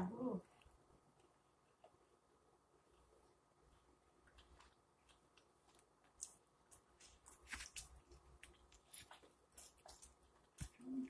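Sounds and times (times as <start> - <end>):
chewing food: 3.0 - 11.0.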